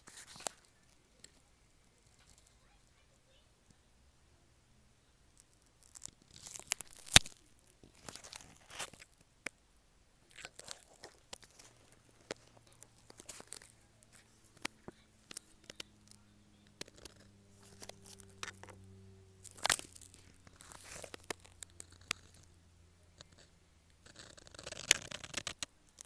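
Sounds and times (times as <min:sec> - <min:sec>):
pen nib scratching on paper: 0:00.0 - 0:01.3, 0:16.8 - 0:18.7, 0:19.5 - 0:22.5, 0:23.2 - 0:25.6.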